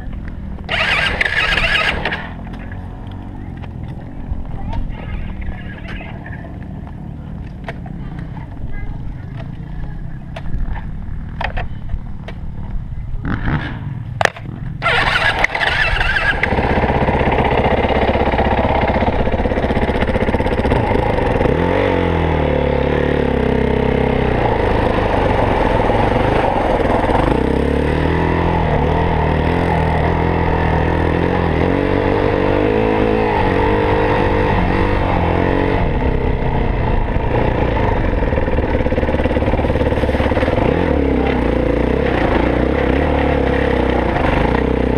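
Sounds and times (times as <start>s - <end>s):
dirt bike engine revving: 0.0s - 3.7s, 13.2s - 44.9s.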